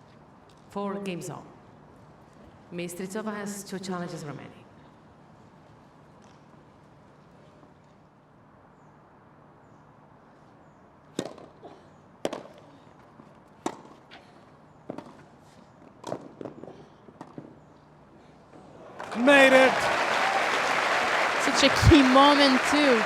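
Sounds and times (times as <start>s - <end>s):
racket hitting tennis ball: 13.6s - 14.0s.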